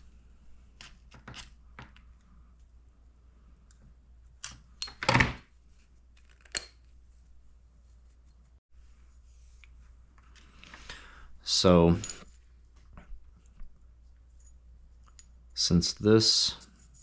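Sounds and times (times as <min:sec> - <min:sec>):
tools clicking and clinking: 0:04.4 - 0:05.2, 0:06.2 - 0:06.8, 0:11.9 - 0:12.3.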